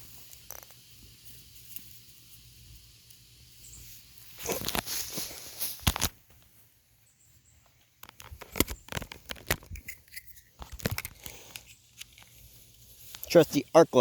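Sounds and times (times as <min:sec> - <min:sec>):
handling noise rustling and clicks: 0:04.3 - 0:06.6, 0:07.6 - 0:13.6.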